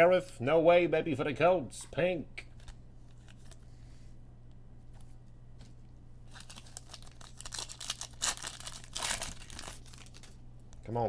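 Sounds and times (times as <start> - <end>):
faint steady hum: 0.0 - 11.0
foil wrapper crinkling and tearing: 6.3 - 10.4.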